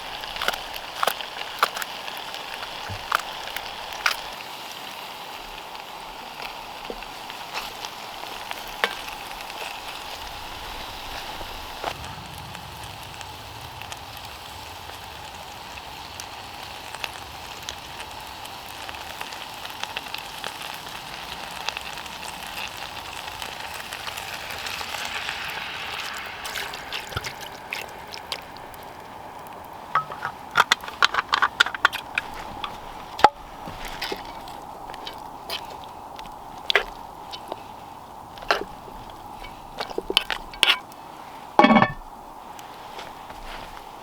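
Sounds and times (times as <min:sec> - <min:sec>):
stew sizzling in a pot: 0:00.0 - 0:44.0
sharp clicks and knocks: 0:30.0 - 0:33.4.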